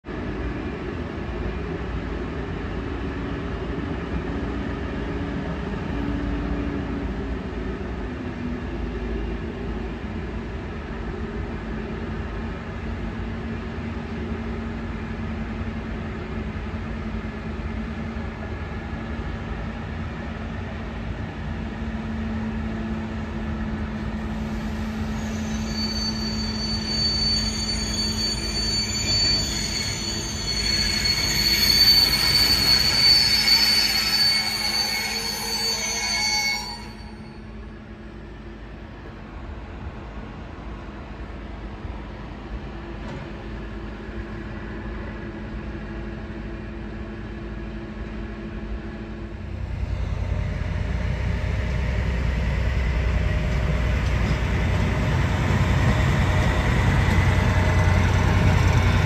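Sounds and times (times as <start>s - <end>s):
wheels squealing on rail: 24.0s - 37.6s, 49.7s - 59.0s.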